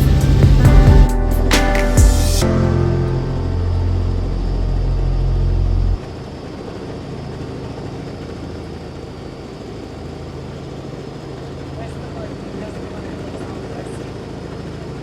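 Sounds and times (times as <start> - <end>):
helicopter engine and rotor drone: 4.5 - 15.0.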